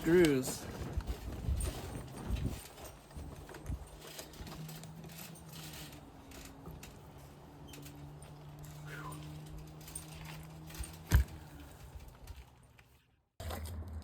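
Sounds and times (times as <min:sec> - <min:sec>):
hand tools clicking: 0:01.8 - 0:12.4.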